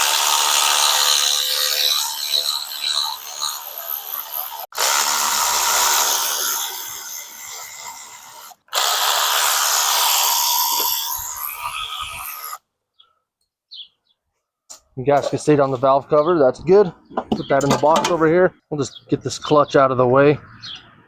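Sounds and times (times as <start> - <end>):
power driver spinning bolts: 17.1 - 18.3.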